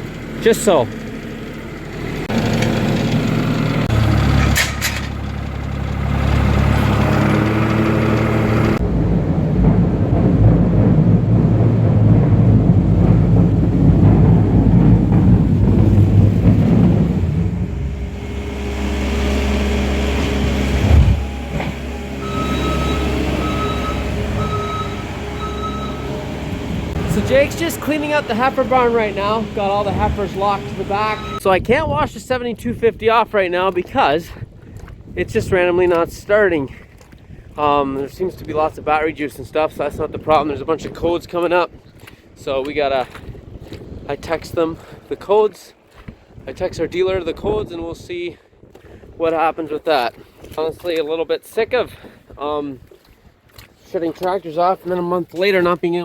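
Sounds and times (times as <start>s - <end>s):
tractor engine running: 0.0s - 31.6s
electronic beeps: 22.2s - 26.2s, 31.1s - 31.4s.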